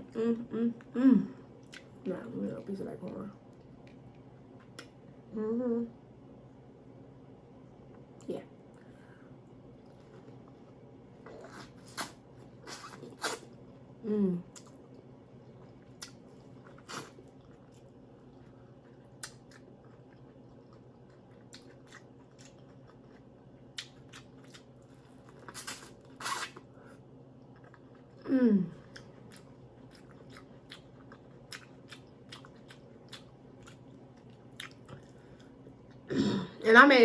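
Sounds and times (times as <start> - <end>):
person humming mm: 0.0 - 1.4, 14.0 - 14.5
person chewing: 14.5 - 26.7, 28.8 - 36.1.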